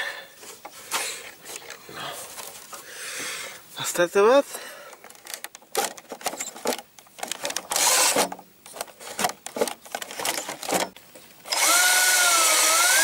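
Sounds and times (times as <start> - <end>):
small motor whining: 11.5 - 13.0.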